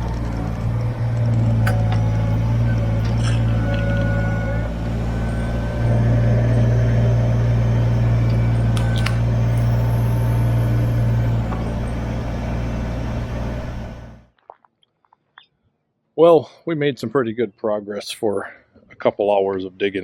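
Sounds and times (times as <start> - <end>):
tractor diesel engine running: 0.0 - 14.3.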